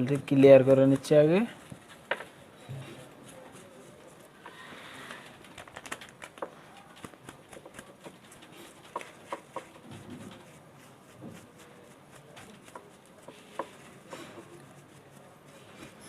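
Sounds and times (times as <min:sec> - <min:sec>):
scraping and rustling on paper: 0:00.0 - 0:16.0.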